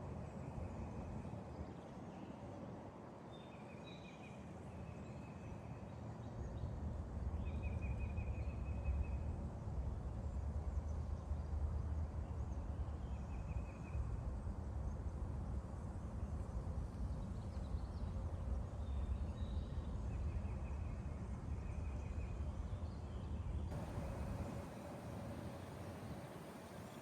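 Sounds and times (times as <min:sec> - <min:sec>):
distant highway traffic hiss: 0:23.7 - 0:27.0
wind buffeting microphone: 0:23.7 - 0:27.0.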